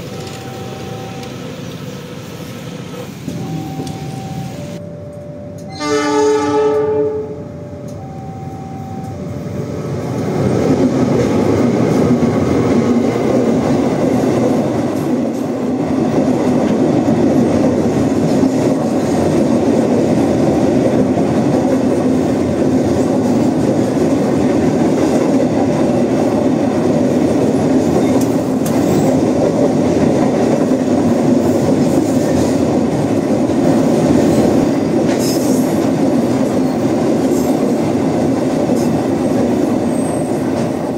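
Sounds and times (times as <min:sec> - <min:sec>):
train horn: 0:05.2 - 0:09.2
train wheels rumbling over rails: 0:09.0 - 0:40.9.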